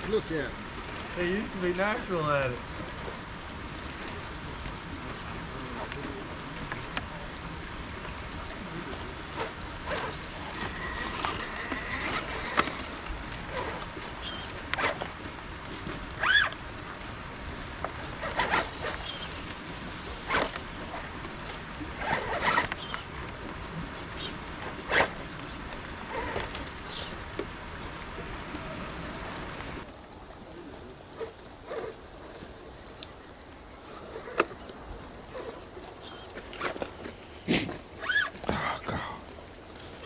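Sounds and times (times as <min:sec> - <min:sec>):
background noise: 0:00.0 - 0:40.0
electric motor and gears whirring: 0:09.2 - 0:17.0, 0:17.8 - 0:27.5, 0:31.2 - 0:38.8.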